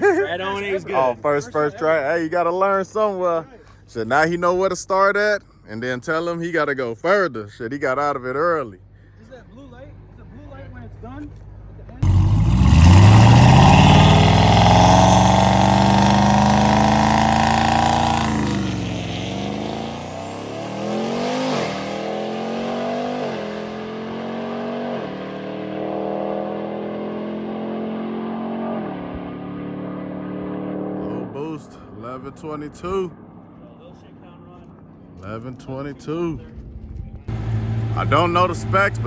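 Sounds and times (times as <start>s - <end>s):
car engine revving and shifting: 12.0s - 31.0s, 37.3s - 39.0s.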